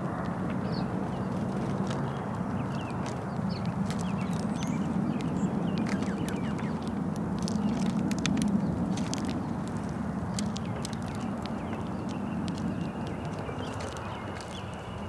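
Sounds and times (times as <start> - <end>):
birds pecking at seed: 0.0 - 15.0
steady low rumble: 0.0 - 15.0
high bird chirps: 2.7 - 6.9.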